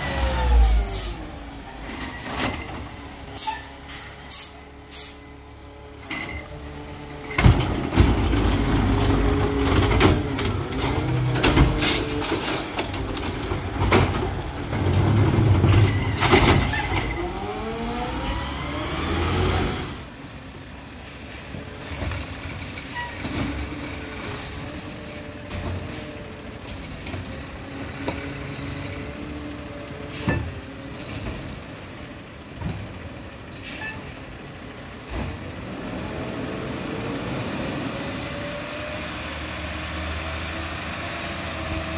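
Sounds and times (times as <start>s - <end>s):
garbage truck engine revving: 6.5s - 20.1s.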